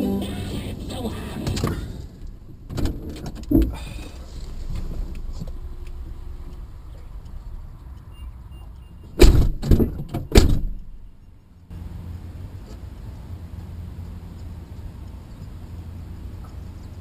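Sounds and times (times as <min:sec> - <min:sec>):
car road rumble: 0:00.0 - 0:17.0
car collision bangs: 0:09.2 - 0:11.0.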